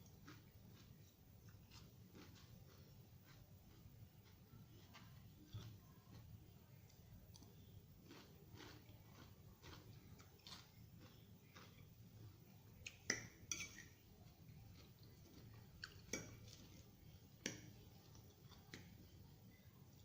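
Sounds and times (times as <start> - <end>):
chewing salad: 0.0 - 20.0
cutlery clinking on a dish: 13.1 - 14.0.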